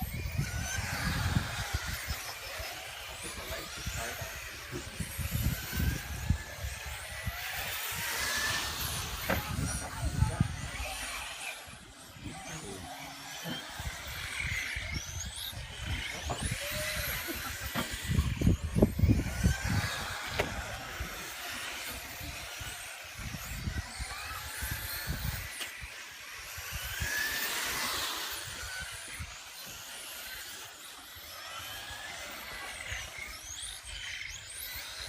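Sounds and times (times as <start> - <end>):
wind noise on microphone: 0.0 - 12.8, 13.8 - 29.4
rc car motors whining: 0.0 - 35.0.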